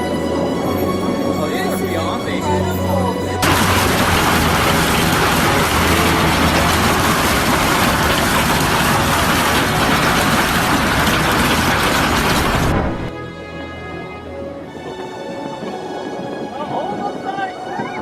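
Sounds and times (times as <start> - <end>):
loud rushing noise: 3.4 - 13.1.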